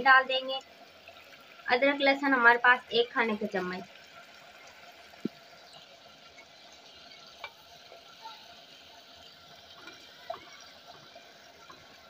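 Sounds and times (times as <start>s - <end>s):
faint sizzling in a pot: 0.0s - 12.0s
spatula stirring: 9.2s - 12.0s.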